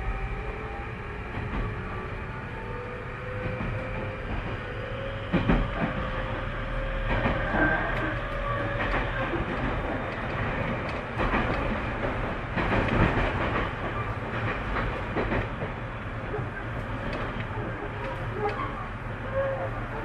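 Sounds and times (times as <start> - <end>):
train wheels rumbling on rail: 0.0 - 20.0
clacks over rail joints: 5.3 - 18.9.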